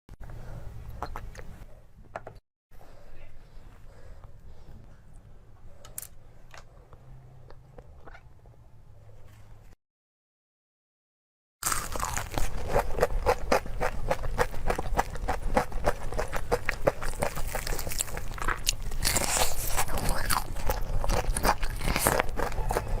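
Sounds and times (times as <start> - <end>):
person crunching food: 11.6 - 23.0.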